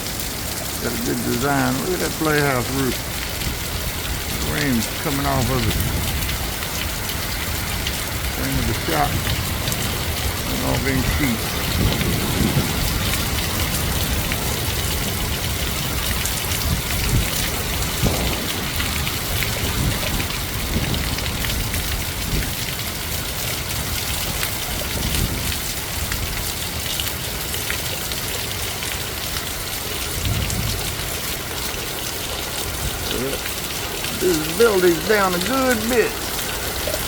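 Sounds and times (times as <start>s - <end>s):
heavy rain pouring: 0.0s - 37.0s
wind gusts on microphone: 1.8s - 22.7s, 24.8s - 26.3s, 30.2s - 31.0s.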